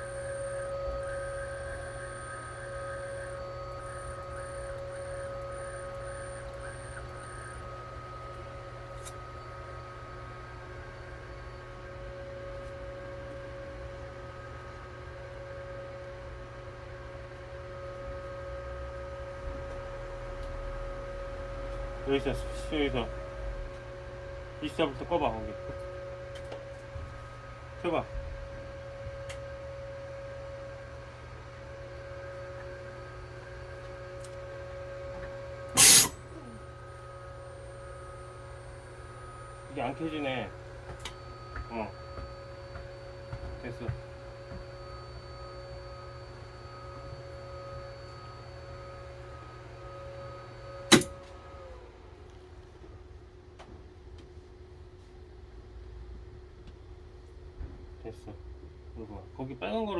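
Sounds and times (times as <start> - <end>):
whining tones: 0.0 - 16.6, 17.3 - 52.2
electrical hum: 0.0 - 52.6
light hiss: 35.8 - 36.1.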